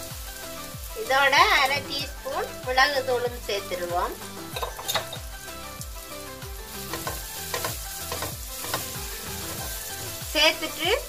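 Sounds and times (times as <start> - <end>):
masala frying with light sizzle: 0.0 - 11.0
wooden spatula scraping a pan: 6.8 - 10.3.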